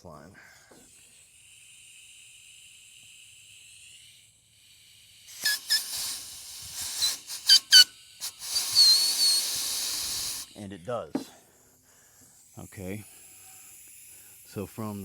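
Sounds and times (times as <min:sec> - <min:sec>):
air blown through rubber hose: 0:00.7 - 0:15.0
squeaky whistling tones: 0:05.3 - 0:10.8.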